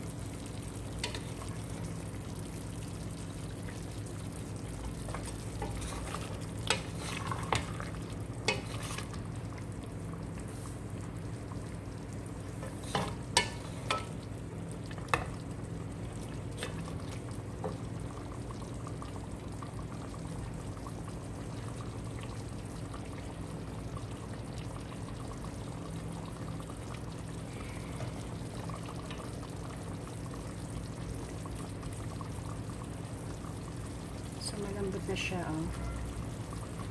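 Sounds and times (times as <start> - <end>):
chicken sizzling in a pan: 0.0 - 36.9.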